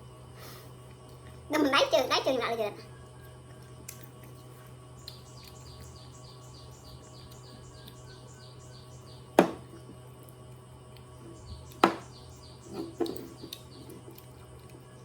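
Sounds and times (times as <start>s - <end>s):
sharp knocks: 9.4s - 9.7s, 11.8s - 12.1s.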